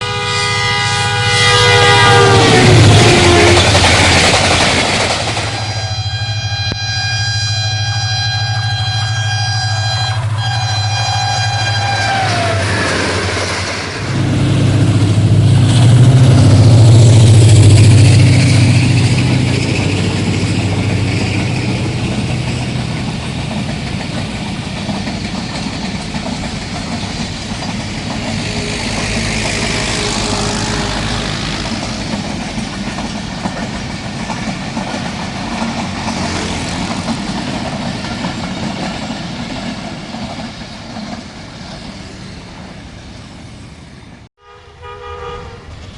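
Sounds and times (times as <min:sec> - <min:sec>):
train horn: 0:00.0 - 0:03.9, 0:05.4 - 0:13.4, 0:28.3 - 0:31.9, 0:44.4 - 0:45.9
locomotive engine drone: 0:00.0 - 0:44.3
coaches rumbling along rails: 0:00.0 - 0:45.9.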